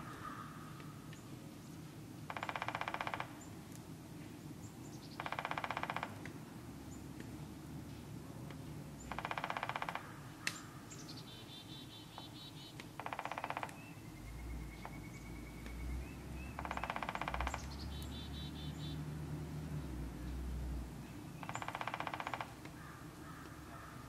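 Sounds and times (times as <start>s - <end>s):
harsh raspy bird call: 16.4s - 19.0s, 21.4s - 24.0s.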